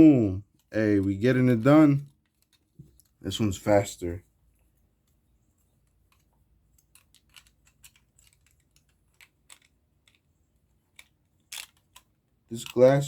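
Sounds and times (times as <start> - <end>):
plastic parts clicking together: 2.1 - 3.2, 4.5 - 13.0.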